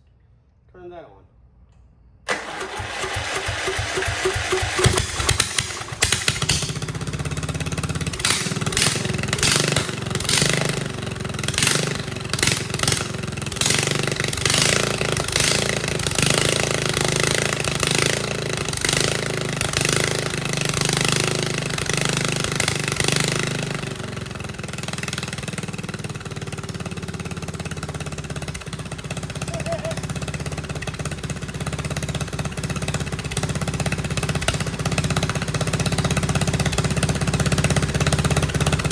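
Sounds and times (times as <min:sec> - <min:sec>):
engine running unevenly: 0:02.3 - 0:13.5.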